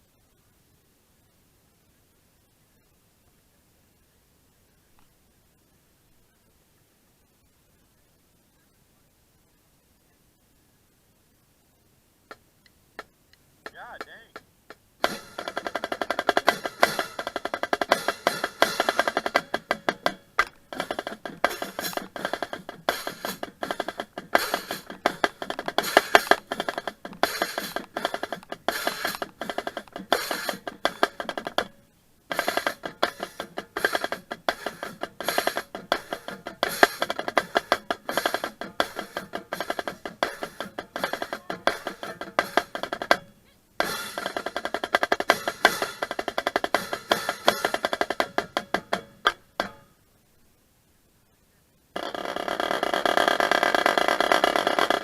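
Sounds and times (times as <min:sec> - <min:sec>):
marching drumline: 0:15.0 - 0:49.8, 0:52.7 - 0:55.0.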